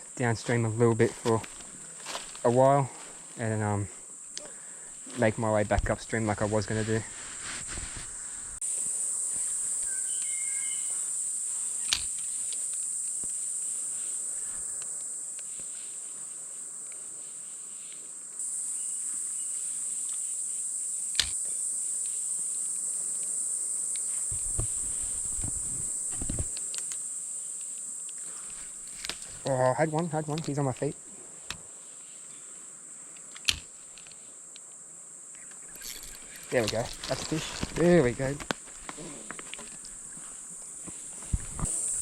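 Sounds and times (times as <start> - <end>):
insects droning: 0.0 - 42.0
low thuds: 24.3 - 26.5.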